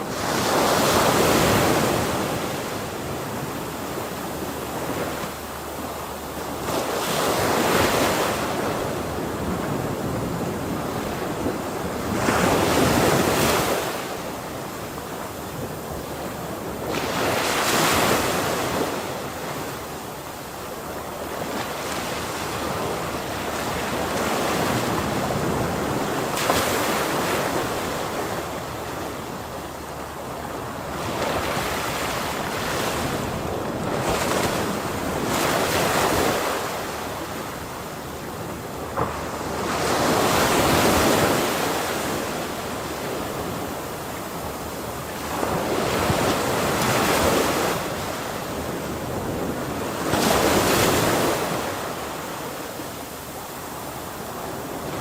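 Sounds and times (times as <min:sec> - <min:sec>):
ocean waves crashing: 0:30.5 - 0:52.9.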